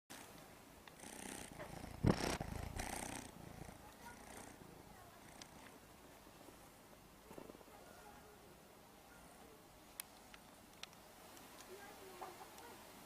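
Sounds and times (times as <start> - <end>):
cat purring: 0.9 - 6.6.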